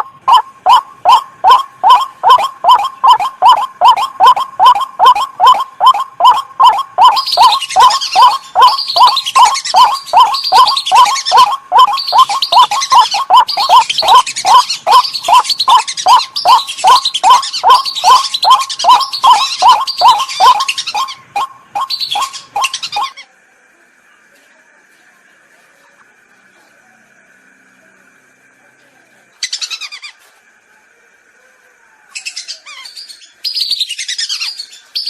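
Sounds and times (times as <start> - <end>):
waterbird calls: 0.0 - 23.2
high chattering bird calls: 0.0 - 23.3, 29.4 - 30.2, 32.1 - 35.0.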